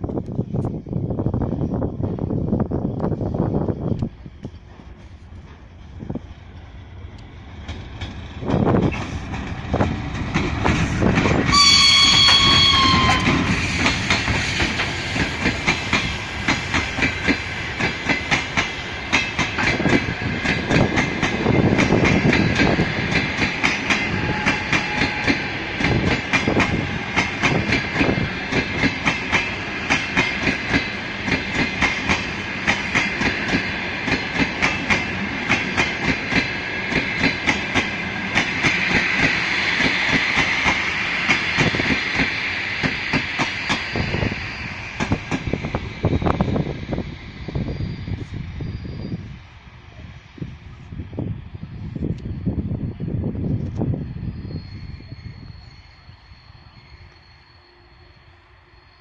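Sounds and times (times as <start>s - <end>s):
train rumble: 0.0s - 59.0s
clickety-clack of wheels: 7.6s - 44.0s
train horn: 11.5s - 13.6s, 23.9s - 25.7s.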